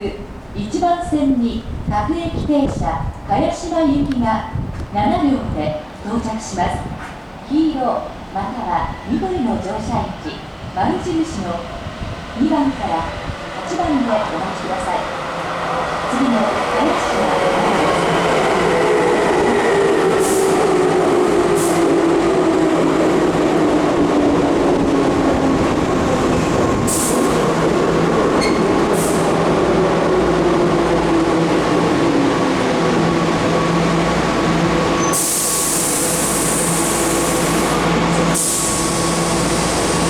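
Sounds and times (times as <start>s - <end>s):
air hissing from train pneumatics: 20.2s - 20.6s, 21.6s - 21.8s, 26.9s - 27.4s, 28.4s - 29.3s, 35.0s - 40.0s.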